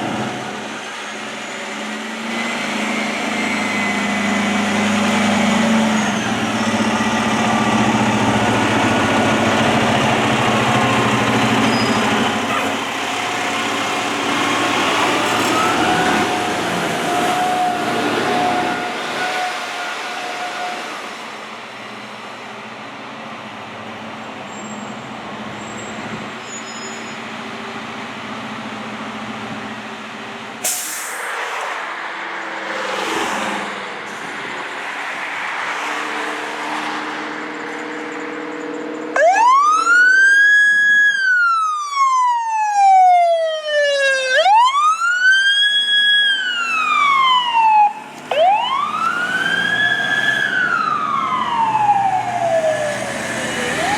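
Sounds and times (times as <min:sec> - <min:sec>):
fire truck engine running: 0:02.6 - 0:18.1, 0:44.4 - 0:53.9
air brakes hissing: 0:30.6 - 0:31.4.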